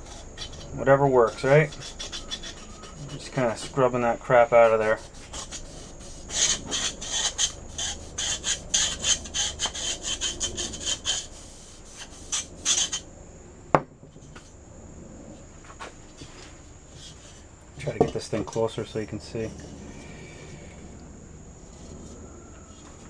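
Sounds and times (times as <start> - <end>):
steel wool scrubbing metal track: 0.0 - 13.0.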